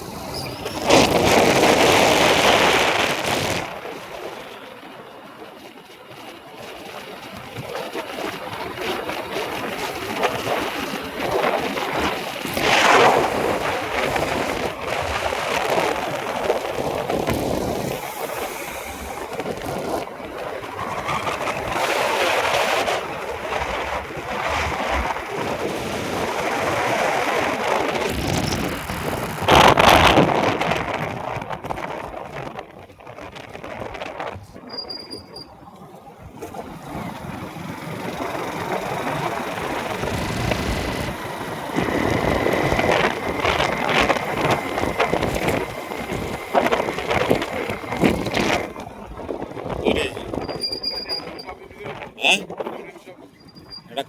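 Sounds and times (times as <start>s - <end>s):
road traffic noise: 0.0s - 32.2s, 32.9s - 54.0s
vehicles passing by: 35.3s - 54.0s.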